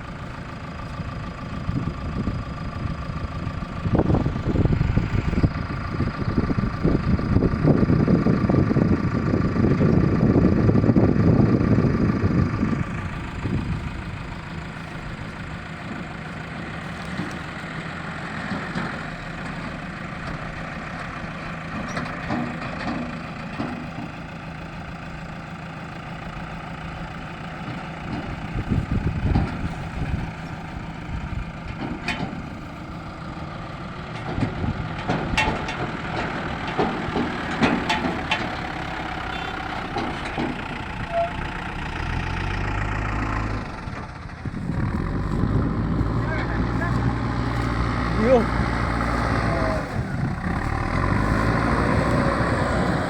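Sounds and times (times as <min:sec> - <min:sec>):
diesel engine running: 0:00.0 - 0:53.0
knocks and clanks: 0:21.8 - 0:24.1, 0:31.7 - 0:32.5, 0:34.2 - 0:38.7, 0:39.8 - 0:40.8.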